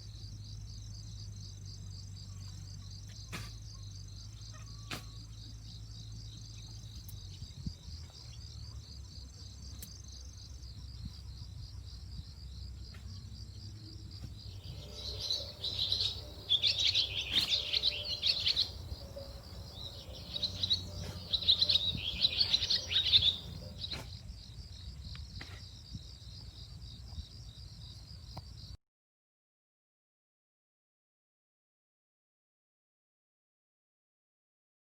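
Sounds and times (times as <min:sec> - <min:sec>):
songbird twittering song: 0:00.0 - 0:24.1
insect chirring: 0:14.5 - 0:24.0.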